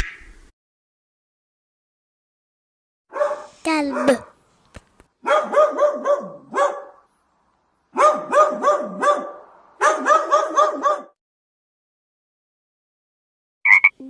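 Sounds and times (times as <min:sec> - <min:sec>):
dog barking: 0:03.1 - 0:04.4, 0:05.2 - 0:07.1, 0:07.9 - 0:11.2.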